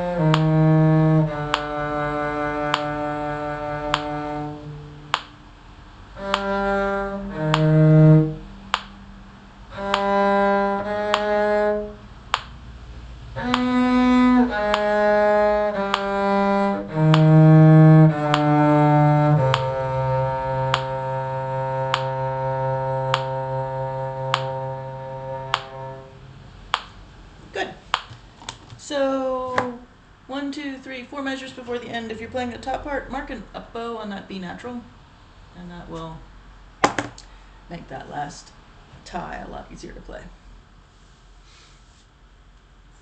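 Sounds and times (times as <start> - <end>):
metronome clicking: 0.0 - 0.7, 1.3 - 2.0, 2.6 - 3.1, 3.8 - 4.4, 5.1 - 5.4, 6.2 - 9.1, 9.7 - 11.7, 13.4 - 21.0, 21.7 - 22.4, 23.0 - 23.6, 24.2 - 24.7, 25.3 - 25.8
bowed strings playing slow notes: 0.0 - 27.3.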